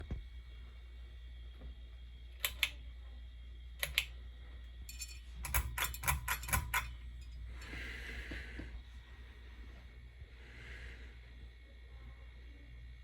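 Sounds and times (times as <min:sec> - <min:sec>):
steady low hum: 0:00.0 - 0:13.0
pull-chain switch clicks: 0:02.4 - 0:02.8, 0:03.8 - 0:04.1, 0:05.0 - 0:07.0.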